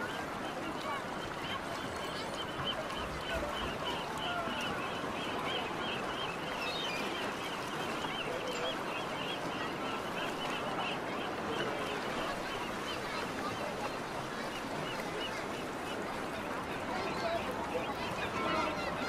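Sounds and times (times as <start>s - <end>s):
background hubbub: 0.0s - 19.0s.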